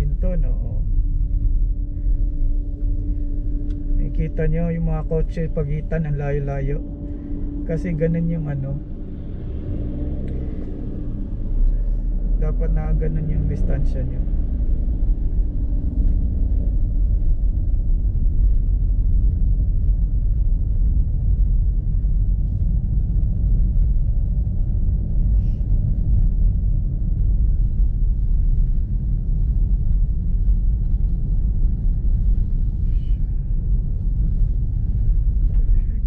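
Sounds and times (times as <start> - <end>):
car driving on snowy road: 0.0 - 36.0.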